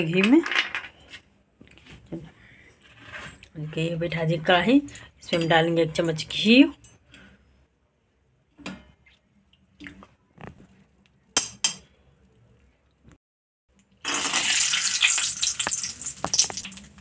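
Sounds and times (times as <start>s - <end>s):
nuts sizzling in hot ghee: 14.0s - 17.0s.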